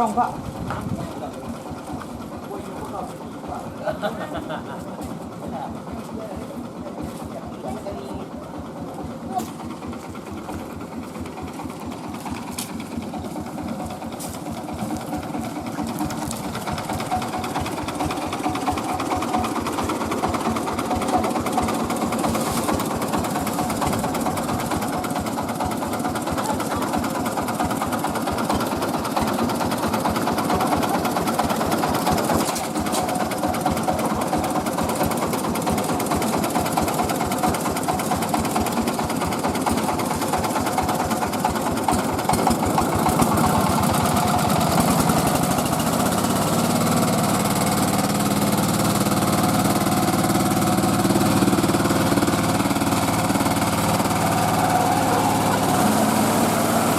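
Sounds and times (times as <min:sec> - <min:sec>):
engine hum: 0:00.0 - 0:56.9.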